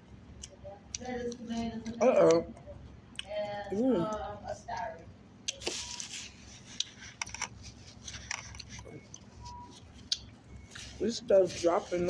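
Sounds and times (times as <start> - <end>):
chewing salad: 0.2 - 12.0
small clicks and scrapes: 5.6 - 9.6.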